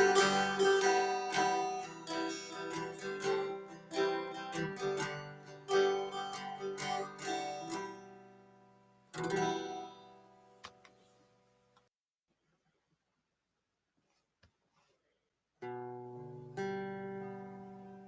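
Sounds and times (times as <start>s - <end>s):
strummed guitar chord: 0.0s - 8.6s, 9.2s - 10.4s
acoustic guitar picking: 0.0s - 10.4s.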